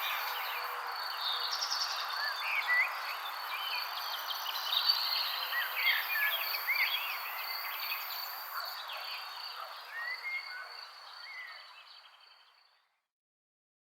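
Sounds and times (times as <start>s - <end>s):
high insect drone: 0.0s - 1.2s
small birds chirping: 0.0s - 12.9s.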